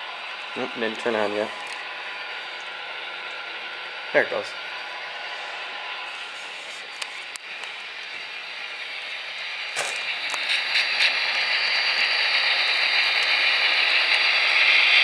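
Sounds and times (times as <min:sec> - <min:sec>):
model locomotive engine sound: 0:00.0 - 0:15.0.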